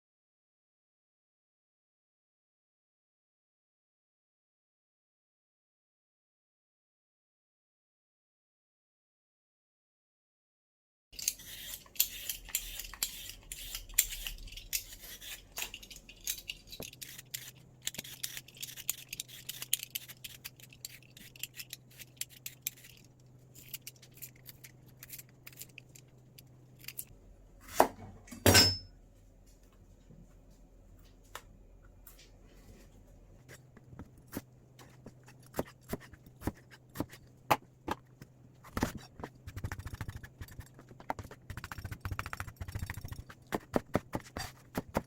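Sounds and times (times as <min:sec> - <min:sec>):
utensil clicks and scrapes: 0:11.2 - 0:27.1, 0:38.6 - 0:45.0.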